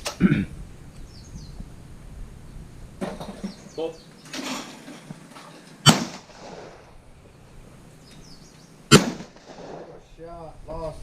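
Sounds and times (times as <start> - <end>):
shotgun shots: 5.8 - 7.0, 8.9 - 10.0.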